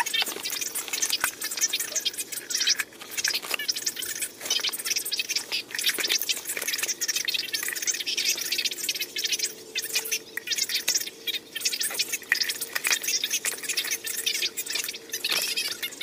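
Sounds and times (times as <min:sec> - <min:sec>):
plastic parts scraping: 0:00.0 - 0:07.1, 0:11.8 - 0:16.0.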